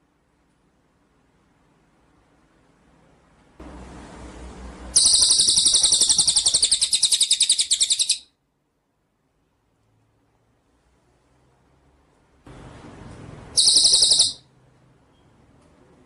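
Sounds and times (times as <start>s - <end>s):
songbird rapid trill: 5.0s - 8.3s, 13.6s - 14.4s.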